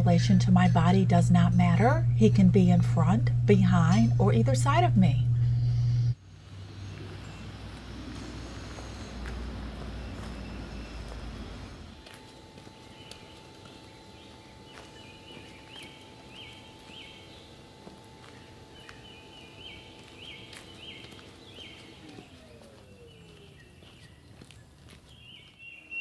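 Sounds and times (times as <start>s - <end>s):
steady hum: 0.0s - 26.0s
bird chirping: 5.4s - 26.0s
footsteps clicking: 6.9s - 25.8s.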